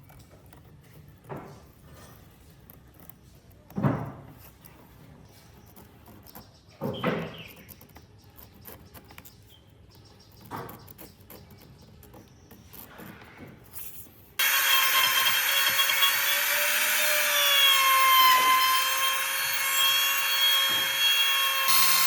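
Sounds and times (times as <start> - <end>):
power tool cutting wood: 14.4 - 22.0.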